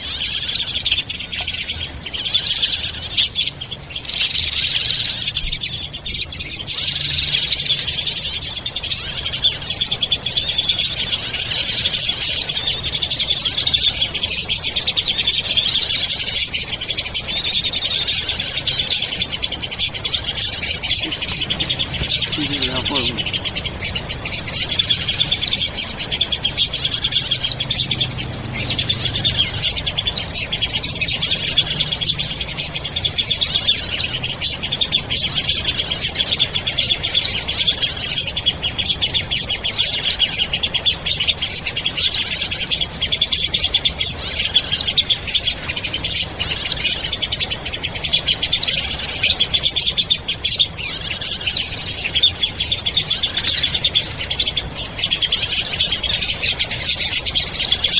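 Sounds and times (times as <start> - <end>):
small birds twittering: 0.0 - 57.9.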